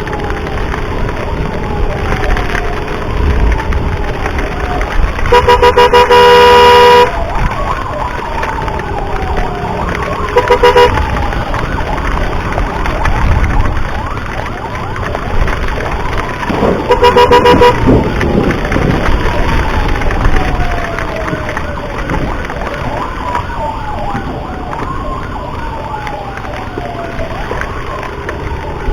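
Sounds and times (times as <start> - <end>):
ambulance siren wailing: 0.0 - 28.9
horn blasts: 5.3 - 7.2, 10.4 - 11.2, 16.6 - 18.2.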